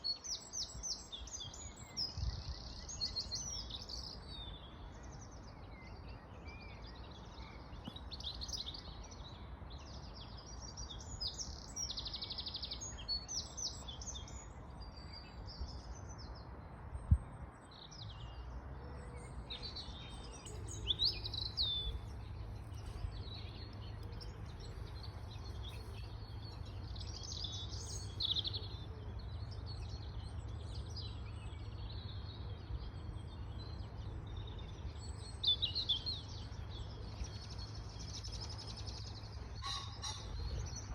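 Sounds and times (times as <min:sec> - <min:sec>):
birds chirping and trilling: 0:17.1 - 0:40.9.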